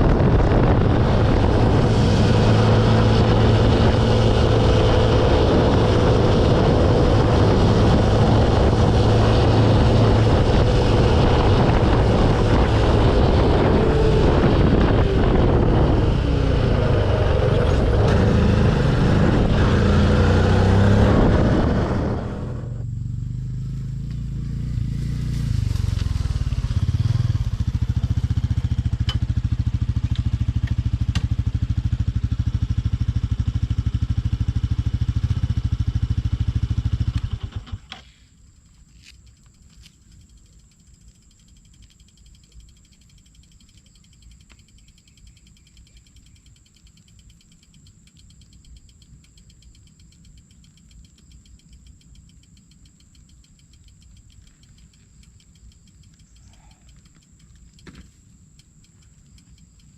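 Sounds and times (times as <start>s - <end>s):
wind rushing over microphone: 0.0s - 22.9s
motorbike engine running: 0.0s - 37.9s.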